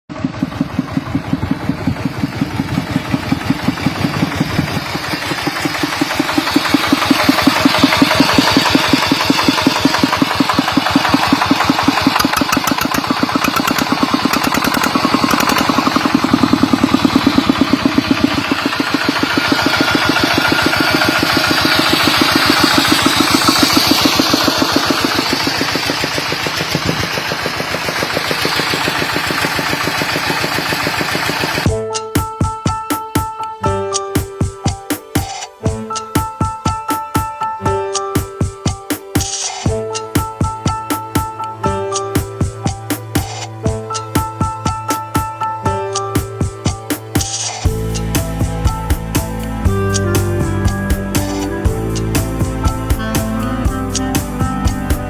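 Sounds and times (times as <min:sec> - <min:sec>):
single-cylinder diesel engine running: 0:00.1 - 0:31.8, 0:47.2 - 0:55.0.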